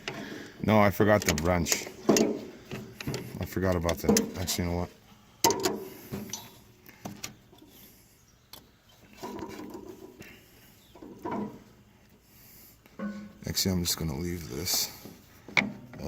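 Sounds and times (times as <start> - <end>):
metal clinks and knocks: 1.1 - 4.8, 5.4 - 7.3, 13.0 - 13.4.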